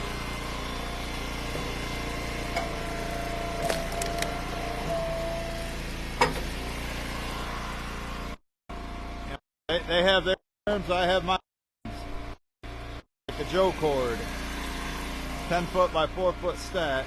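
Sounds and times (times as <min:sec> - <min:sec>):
wood splitter running: 0:00.0 - 0:08.4, 0:13.3 - 0:17.0
wood splitter whine: 0:00.0 - 0:09.4, 0:11.9 - 0:17.0
firewood knocking and cracking: 0:03.6 - 0:04.4.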